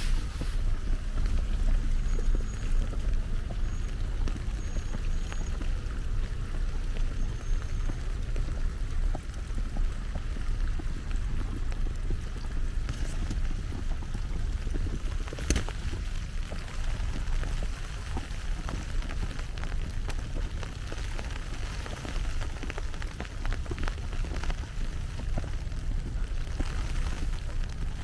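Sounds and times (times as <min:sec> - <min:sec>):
patter of small ticks: 0:00.0 - 0:28.0
wind buffeting microphone: 0:00.0 - 0:28.0.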